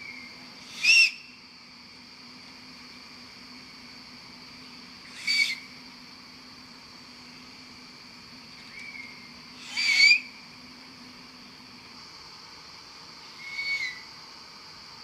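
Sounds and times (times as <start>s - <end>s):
steady high hum: 0.0s - 15.0s
rising whistle-like call: 0.7s - 1.3s, 8.8s - 10.3s, 13.4s - 14.1s.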